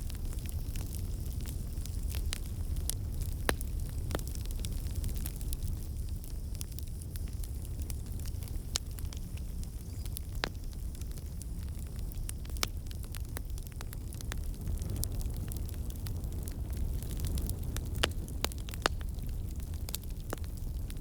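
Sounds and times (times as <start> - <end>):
fire flames rumbling: 0.0 - 21.0
wood fire crackles and pops: 0.0 - 21.0.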